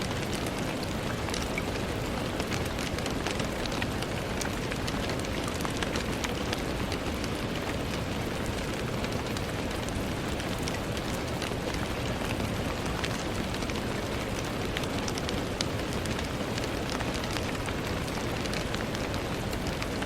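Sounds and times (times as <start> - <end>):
rain falling on a window: 0.0 - 20.0.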